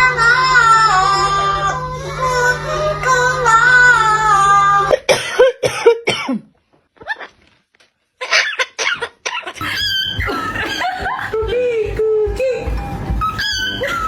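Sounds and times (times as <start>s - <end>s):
music: 0.0s - 4.9s, 9.6s - 14.0s
parrot cough-like sounds: 8.2s - 11.3s
parrot curling calls: 9.6s - 11.4s, 13.2s - 14.0s.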